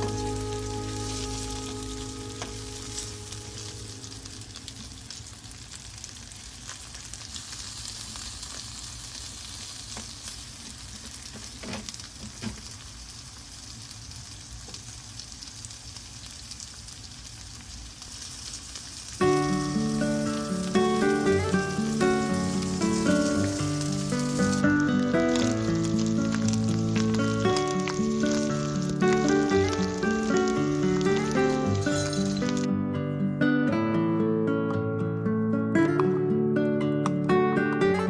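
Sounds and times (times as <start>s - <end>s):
background music: 0.0s - 4.6s, 19.2s - 38.0s
food sizzling in a pan: 0.0s - 32.7s.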